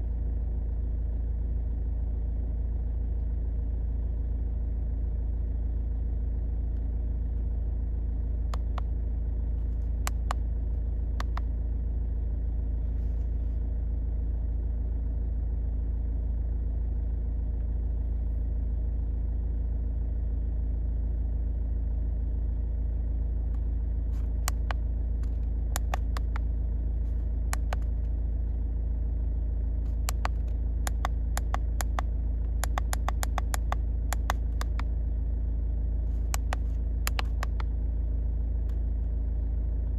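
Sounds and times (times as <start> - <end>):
car engine idling: 0.0 - 39.9
sharp clicks: 8.6 - 8.9, 10.1 - 10.4, 11.2 - 11.5, 24.5 - 26.4, 27.6 - 27.9, 29.9 - 34.9, 36.2 - 37.7.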